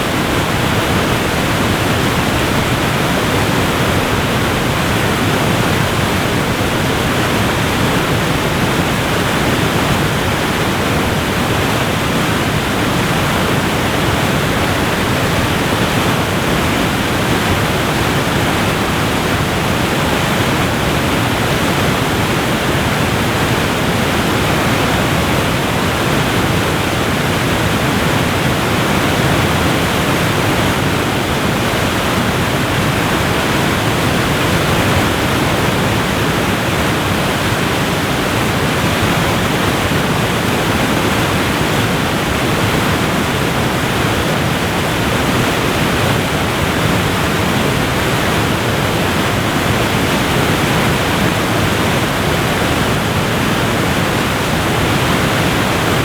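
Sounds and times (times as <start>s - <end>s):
waterfall roaring: 0.0s - 56.0s.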